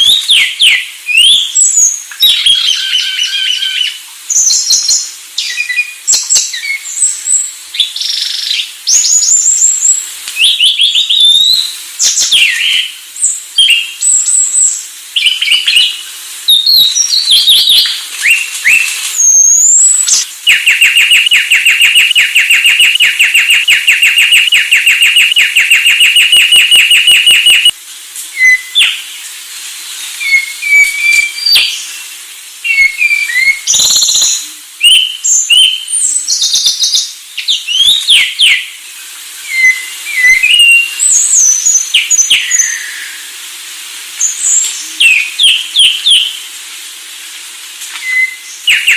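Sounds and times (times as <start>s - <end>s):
thrush singing whistled song: 0.0s - 29.3s, 29.9s - 43.4s, 44.2s - 46.5s, 47.9s - 48.9s
bird rapid trill: 15.2s - 27.7s, 32.8s - 35.8s.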